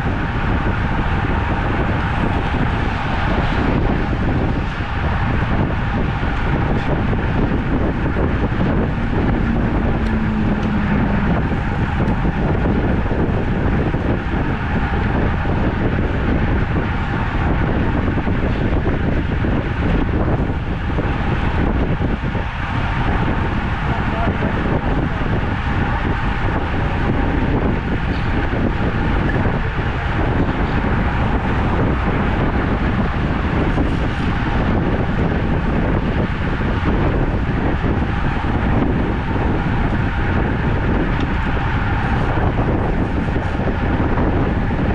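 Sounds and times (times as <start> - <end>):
wind rushing on microphone: 0.0 - 44.9
short low hum: 6.8 - 14.4.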